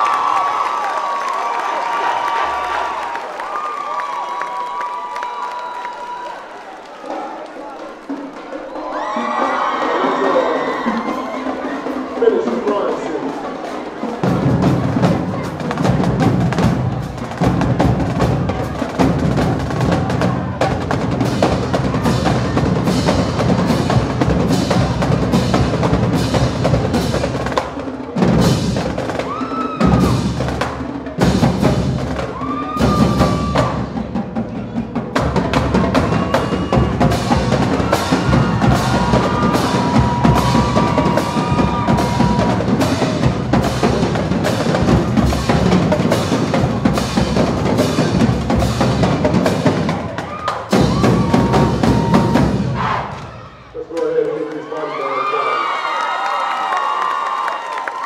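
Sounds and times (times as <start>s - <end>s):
marching drumline beat: 7.1s - 54.3s.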